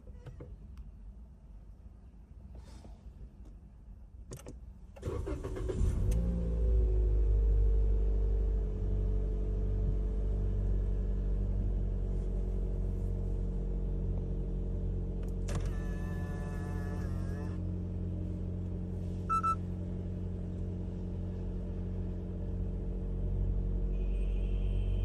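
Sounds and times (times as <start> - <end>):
car engine idling: 5.0 - 25.0.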